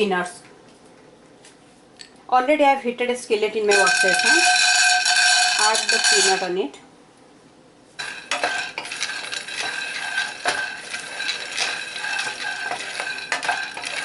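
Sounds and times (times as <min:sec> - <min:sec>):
peanuts rattling in a skillet: 0:03.7 - 0:06.5, 0:08.0 - 0:14.0.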